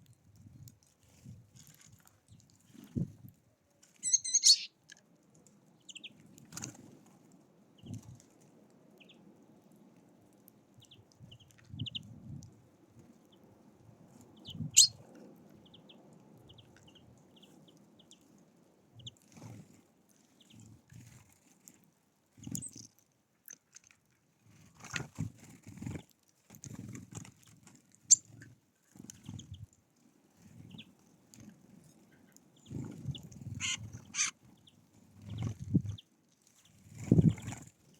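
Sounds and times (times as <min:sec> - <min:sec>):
songbirds chirping: 0:04.0 - 0:04.8, 0:05.6 - 0:06.3.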